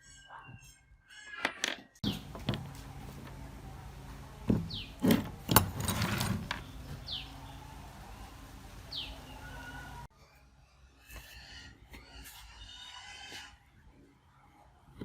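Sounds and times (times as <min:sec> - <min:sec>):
steady mechanical hum: 0:02.0 - 0:10.1.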